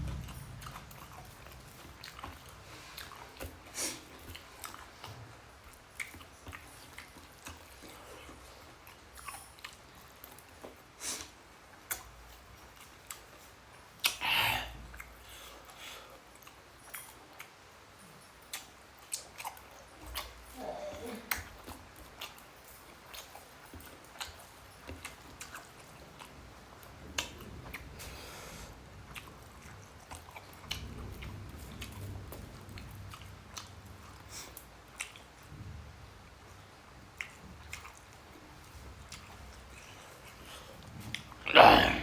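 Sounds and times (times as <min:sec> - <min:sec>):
person chewing food: 0:00.0 - 0:14.2, 0:18.5 - 0:35.5, 0:36.3 - 0:42.0
wet mouth clicks: 0:14.0 - 0:15.2.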